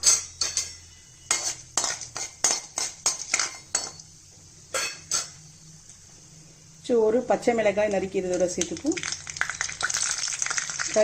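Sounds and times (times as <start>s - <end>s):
metal spoon scraping a pan: 0.0s - 4.0s, 4.7s - 5.4s.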